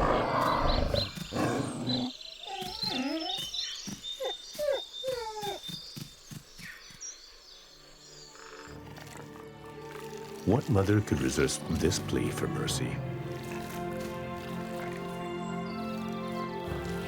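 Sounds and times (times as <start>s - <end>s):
wolves snarling and growling: 0.0s - 3.4s, 8.3s - 10.6s, 13.1s - 17.0s
wolf pup whining and yelping: 4.2s - 5.8s.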